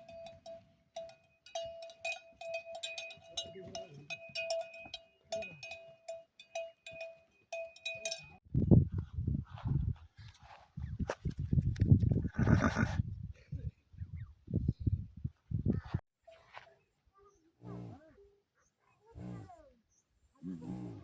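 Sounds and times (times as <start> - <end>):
animal neck bell clanking: 0.0 - 8.4.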